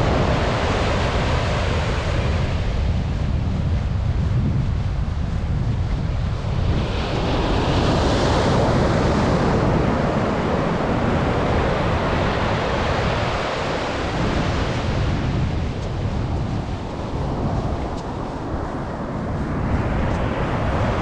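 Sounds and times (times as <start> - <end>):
wind rumbling on microphone: 0.0 - 21.0
surf breaking on beach: 6.5 - 18.6.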